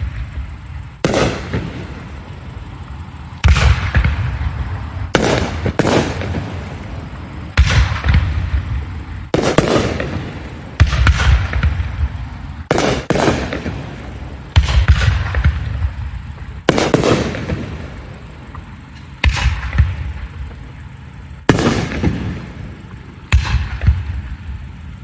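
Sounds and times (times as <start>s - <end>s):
fireworks bursting: 0.0s - 25.0s.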